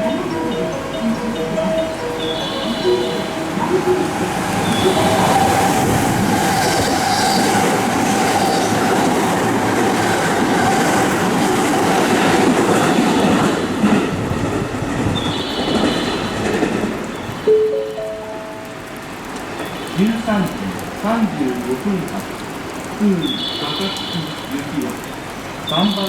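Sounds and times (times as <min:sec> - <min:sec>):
train wheels rumbling on rails: 0:00.0 - 0:17.5.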